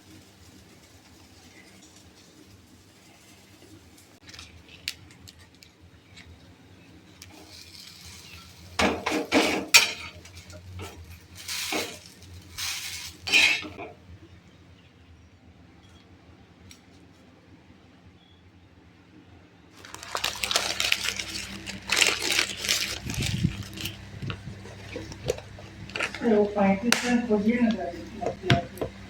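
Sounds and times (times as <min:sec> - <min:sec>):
dishes and cutlery clattering: 0:08.8 - 0:11.0.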